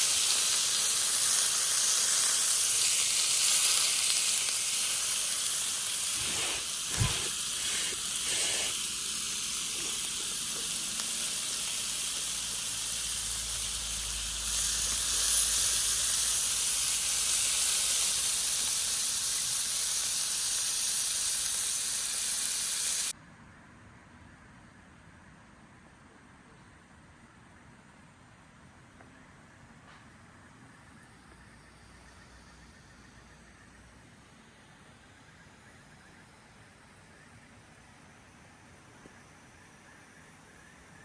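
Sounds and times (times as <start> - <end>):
meat sizzling over fire: 0.0 - 23.2.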